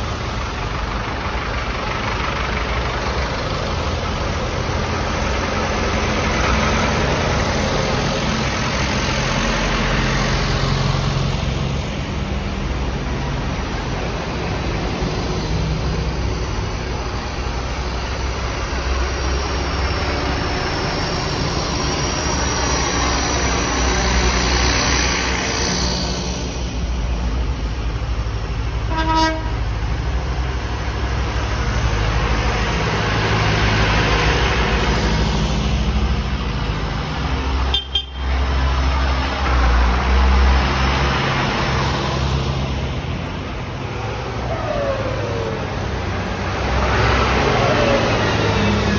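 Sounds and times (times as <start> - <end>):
tractor engines passing: 0.0 - 48.9
horn toot: 28.9 - 29.6.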